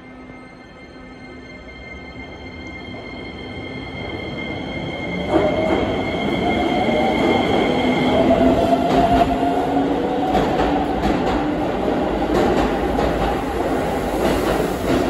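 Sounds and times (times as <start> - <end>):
steady train whine: 0.0 - 15.0
train rumbling: 3.8 - 15.0.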